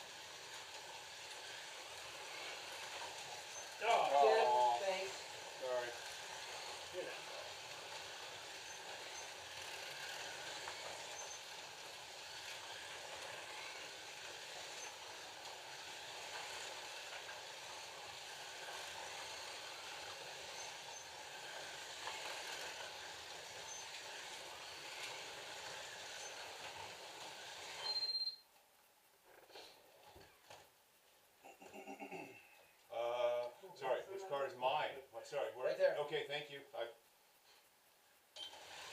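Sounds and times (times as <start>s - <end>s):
slot car motors whirring: 0.0s - 27.9s.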